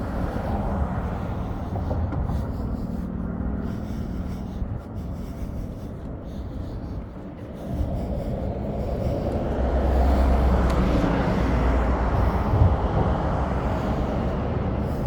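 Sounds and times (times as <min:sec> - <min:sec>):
vehicle passing by: 0:00.0 - 0:15.0.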